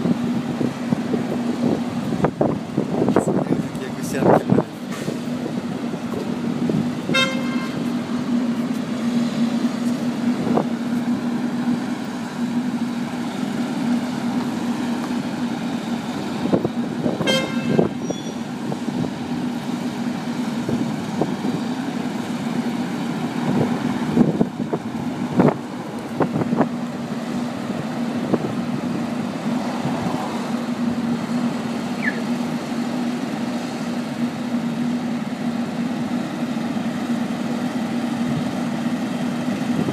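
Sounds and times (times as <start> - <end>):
traffic engine hum: 0.0 - 39.9
car horn toots: 7.1 - 7.8, 17.2 - 18.4.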